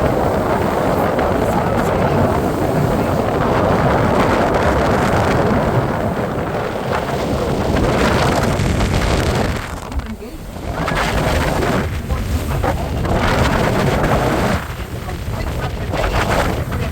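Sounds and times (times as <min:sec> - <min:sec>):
boat moving through water: 0:00.0 - 0:16.9
boat rumble: 0:00.0 - 0:16.9
wind buffeting microphone: 0:00.0 - 0:16.9.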